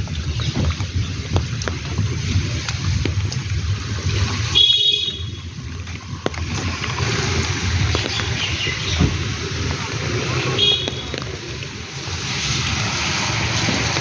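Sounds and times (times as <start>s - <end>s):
scattered drips: 0.0s - 14.0s
steady rain: 0.0s - 14.0s.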